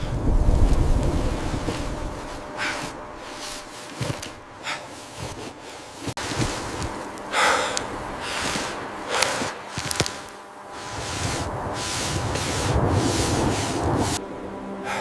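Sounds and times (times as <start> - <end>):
heavy breathy snorts: 7.3 - 9.8.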